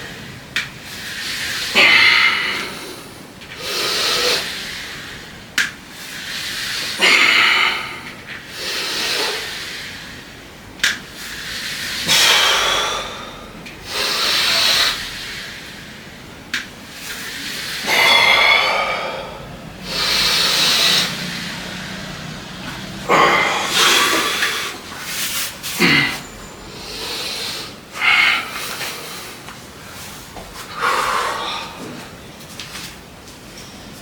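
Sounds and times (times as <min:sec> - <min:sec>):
man breathing hard: 0:06.2 - 0:10.3, 0:11.4 - 0:16.0, 0:17.4 - 0:25.1, 0:25.7 - 0:32.2.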